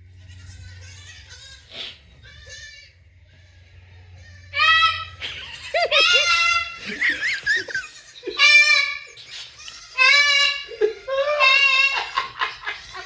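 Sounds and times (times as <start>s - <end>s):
goat kid bleating: 0.1s - 12.2s
short chirpy squeaks: 8.8s - 10.0s.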